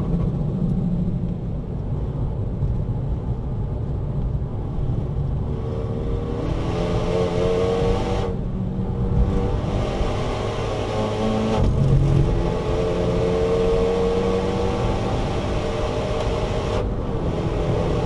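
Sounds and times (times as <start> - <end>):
car engine revving from inside cabin: 5.5 - 8.3, 9.0 - 18.0.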